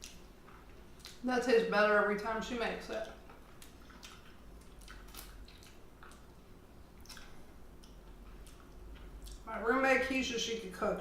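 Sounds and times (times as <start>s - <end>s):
person chewing food: 0.0s - 1.2s, 3.0s - 9.5s.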